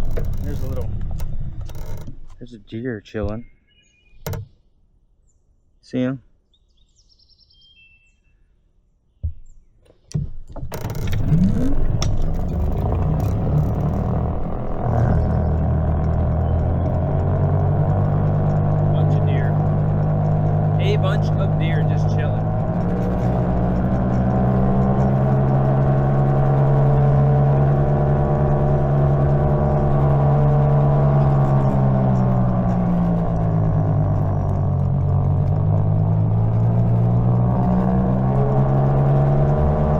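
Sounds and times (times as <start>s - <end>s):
wind and road noise: 0.0s - 3.5s, 9.9s - 39.9s
electric motor whine: 10.7s - 39.9s.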